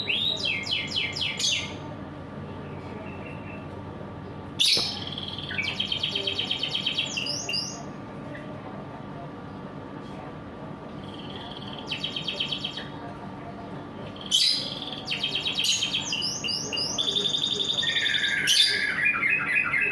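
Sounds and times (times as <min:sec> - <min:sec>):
canary singing trills: 0:00.0 - 0:01.8, 0:04.6 - 0:08.0, 0:11.0 - 0:13.0, 0:14.1 - 0:19.9.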